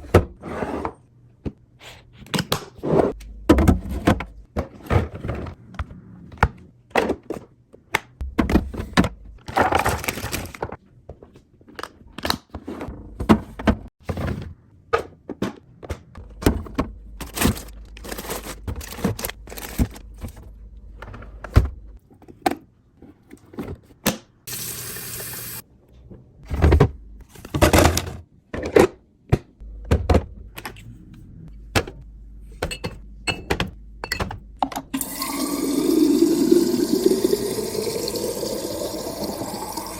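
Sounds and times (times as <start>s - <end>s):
containers and packages handled: 2.2s - 24.4s.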